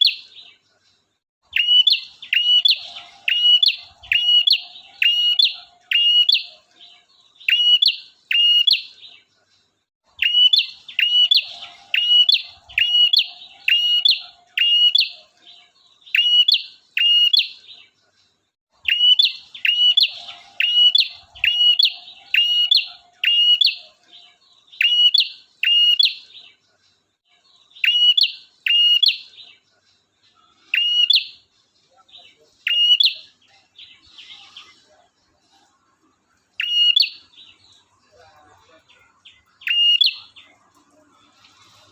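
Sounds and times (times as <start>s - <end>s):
bird whistling song: 1.5s - 8.9s, 10.2s - 17.6s, 18.8s - 26.4s, 27.8s - 29.3s, 30.6s - 31.4s, 32.6s - 34.8s, 36.6s - 37.6s, 39.6s - 40.5s.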